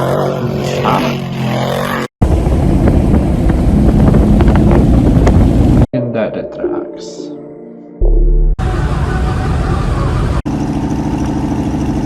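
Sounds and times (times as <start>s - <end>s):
loud low engine rumble: 8.6s - 12.0s
truck engine running: 8.6s - 12.0s.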